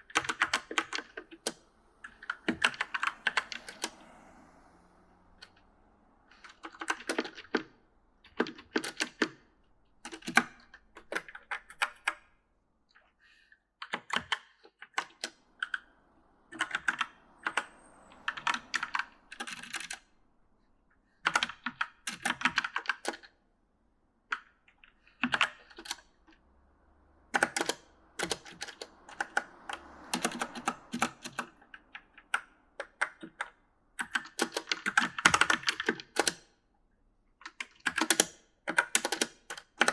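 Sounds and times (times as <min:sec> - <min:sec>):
mechanical keyboard typing: 0:00.1 - 0:04.0, 0:06.3 - 0:07.7, 0:16.5 - 0:17.7, 0:18.3 - 0:20.0, 0:21.3 - 0:23.3, 0:27.4 - 0:36.4, 0:37.4 - 0:39.9.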